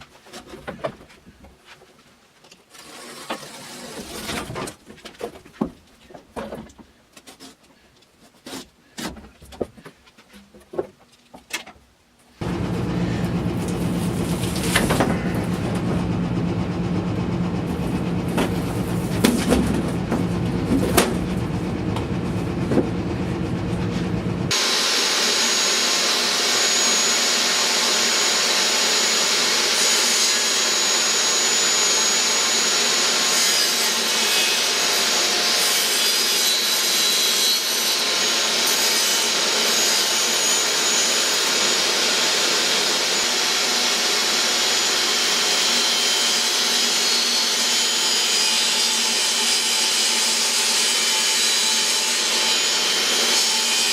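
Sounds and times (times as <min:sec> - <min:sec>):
low hum: 0:12.4 - 0:24.6
power tool running on wood: 0:12.4 - 0:53.9.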